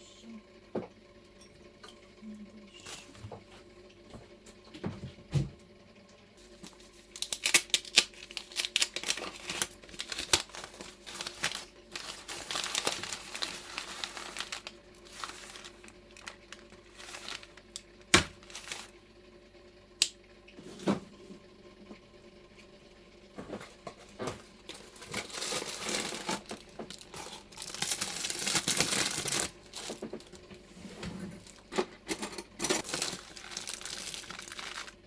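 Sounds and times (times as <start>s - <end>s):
crinkling and rustling: 6.4s - 19.0s, 23.3s - 35.0s.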